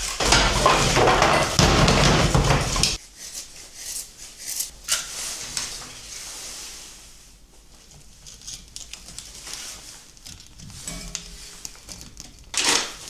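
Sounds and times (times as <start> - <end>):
packaging rustling and crinkling: 7.6 - 13.0.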